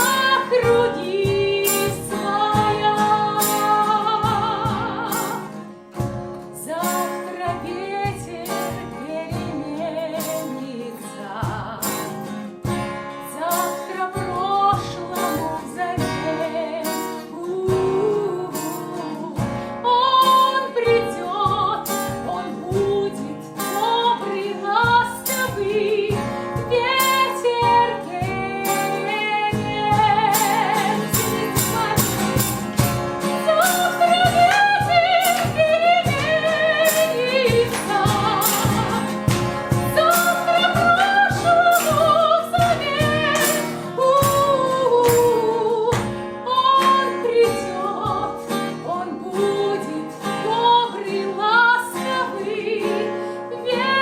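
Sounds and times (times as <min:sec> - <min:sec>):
instrumental backing with steady beat: 0:00.0 - 0:10.6, 0:11.4 - 0:47.5
singing voices with vibrato: 0:13.3 - 0:32.6, 0:33.3 - 0:54.0.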